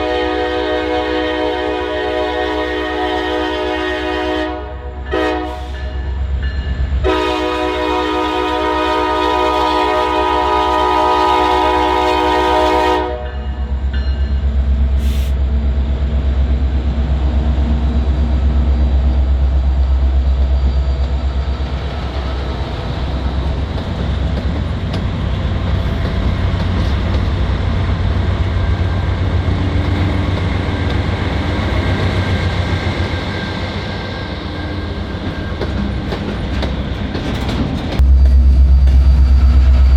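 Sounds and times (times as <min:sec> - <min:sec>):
locomotive horn blast: 0:00.0 - 0:06.1, 0:07.0 - 0:13.7
train wheels clickety-clack: 0:20.3 - 0:39.9.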